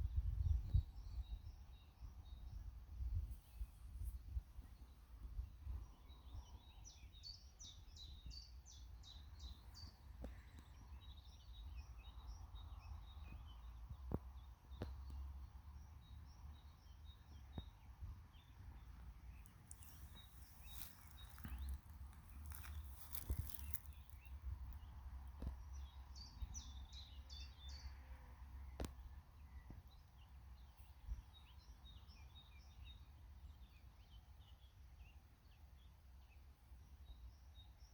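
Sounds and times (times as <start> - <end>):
wind rumble on microphone: 0.0 - 6.7
songbird chirping: 0.0 - 37.9.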